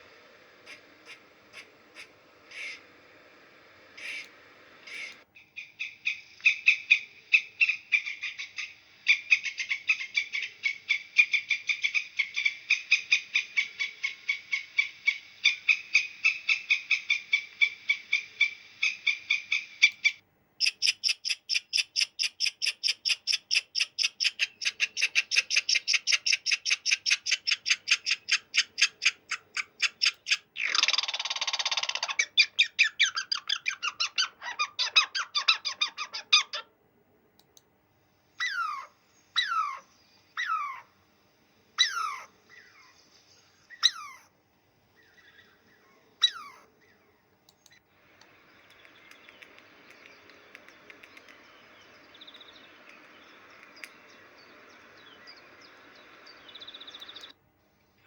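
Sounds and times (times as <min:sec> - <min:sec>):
animal calls: 0:00.6 - 0:02.9, 0:04.0 - 0:20.2, 0:38.4 - 0:40.9, 0:41.8 - 0:44.3, 0:45.0 - 0:47.8.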